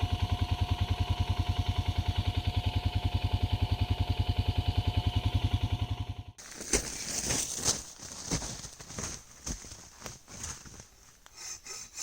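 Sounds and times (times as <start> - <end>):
atv engine idling: 0.0 - 6.4.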